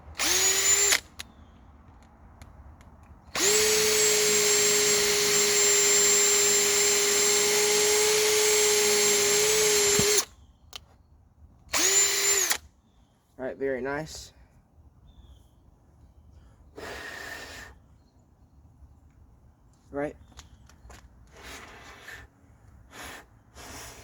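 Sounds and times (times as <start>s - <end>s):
cordless drill whining: 0.2s - 1.3s, 3.3s - 10.3s, 11.7s - 12.6s.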